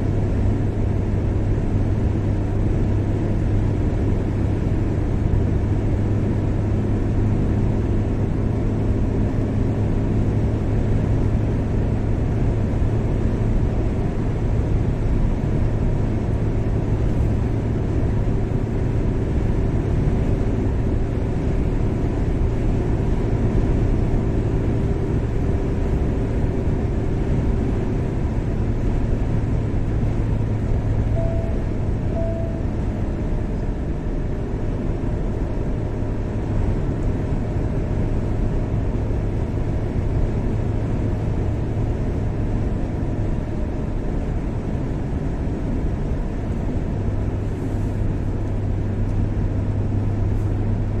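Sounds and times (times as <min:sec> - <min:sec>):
car engine rumble: 0:00.0 - 0:51.0
low hum: 0:14.2 - 0:37.1.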